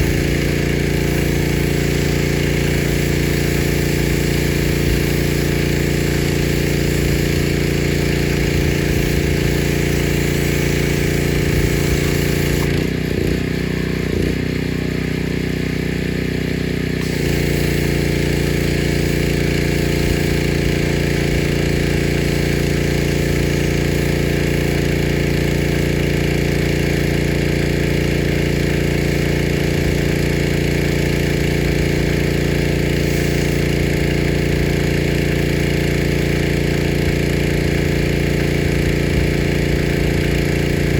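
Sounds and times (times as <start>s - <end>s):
pressure washer spray hiss: 0.0s - 14.4s, 17.0s - 40.9s
pressure washer motor: 0.0s - 40.9s.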